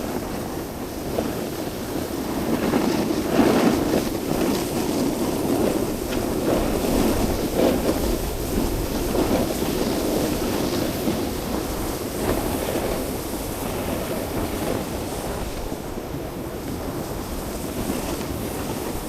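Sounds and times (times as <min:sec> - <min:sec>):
snowboard sliding on snow: 0:00.0 - 0:19.0
wind buffeting microphone: 0:00.0 - 0:19.0.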